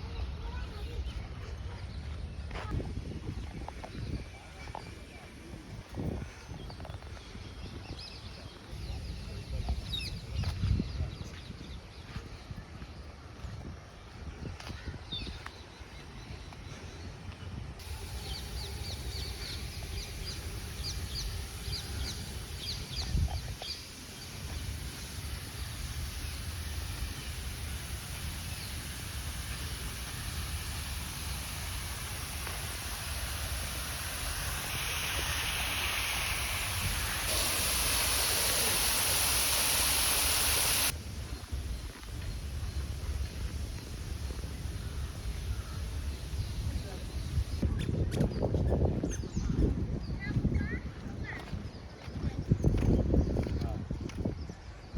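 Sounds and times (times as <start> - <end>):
loud steady hiss: 17.8 - 47.7
bird chirping: 17.9 - 47.6.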